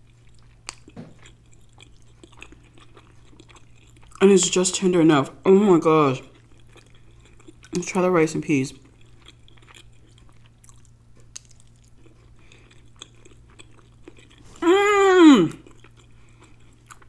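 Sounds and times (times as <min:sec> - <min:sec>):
woman chewing: 0:00.0 - 0:04.9, 0:06.2 - 0:08.0, 0:08.8 - 0:17.0
woman saying mmm: 0:14.5 - 0:15.6.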